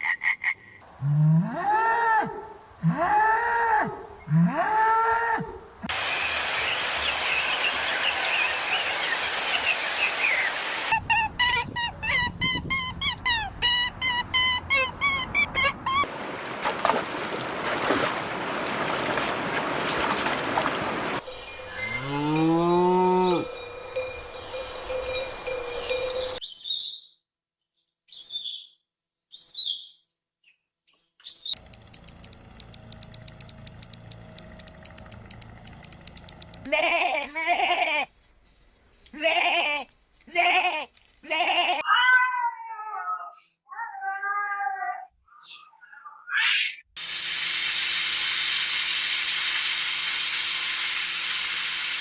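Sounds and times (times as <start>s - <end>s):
outdoor background noise: 0.0s - 26.5s, 30.4s - 46.0s
cow mooing: 1.0s - 3.1s, 21.8s - 23.6s
rapid bird chirping: 31.0s - 36.7s.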